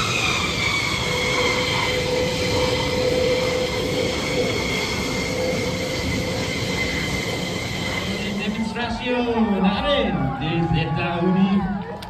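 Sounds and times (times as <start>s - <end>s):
aircraft engine rushing noise: 0.0s - 12.0s
high steady engine whine: 0.0s - 12.0s.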